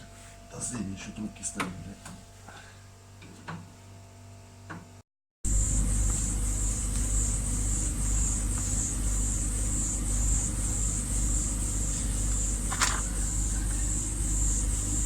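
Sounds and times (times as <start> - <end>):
pulsing high-pitched hiss: 5.5 - 15.0.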